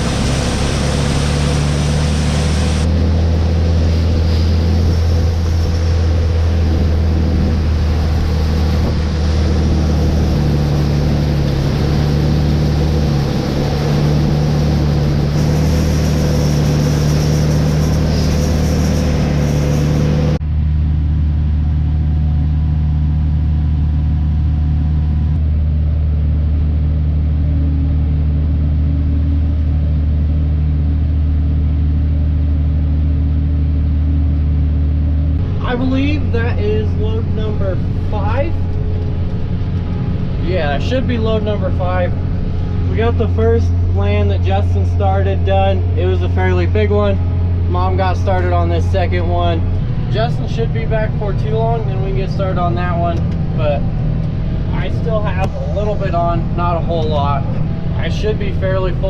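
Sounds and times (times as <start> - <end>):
high rushing noise: 0.0 - 20.6
diesel engine humming: 0.0 - 59.0.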